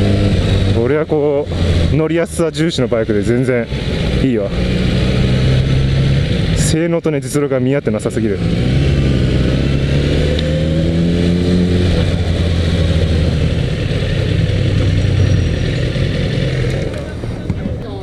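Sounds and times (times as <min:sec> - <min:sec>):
motorcycle engine idling: 0:12.2 - 0:17.5.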